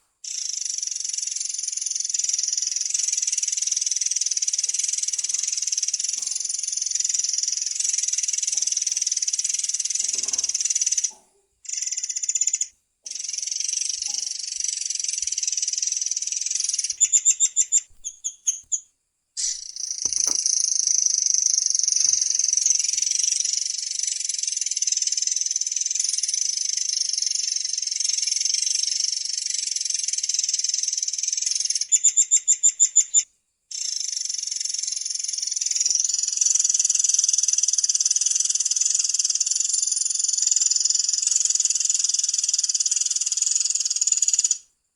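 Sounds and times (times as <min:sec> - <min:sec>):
songbird trilling: 0:13.3 - 0:18.8, 0:19.4 - 0:20.6, 0:21.9 - 0:23.2.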